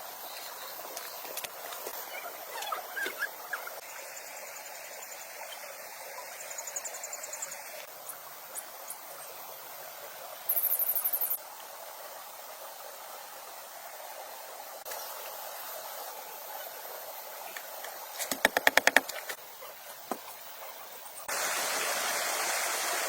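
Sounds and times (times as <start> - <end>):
watery hiss outdoors: 0.0 - 23.0
high-pitched insect trill: 10.5 - 11.4.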